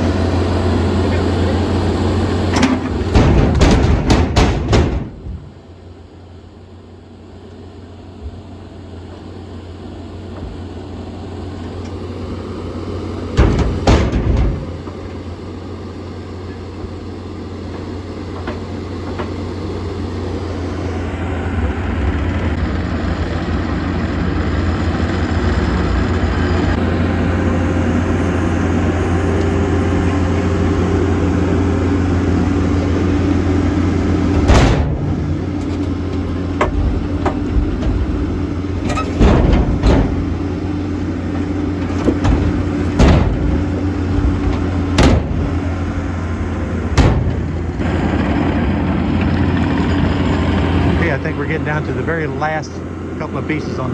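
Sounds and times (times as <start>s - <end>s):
diesel engine running: 0.0s - 53.9s
wood blocks landing in trailer: 2.5s - 5.5s, 13.4s - 14.9s, 34.3s - 40.4s, 41.8s - 46.1s, 46.9s - 48.0s.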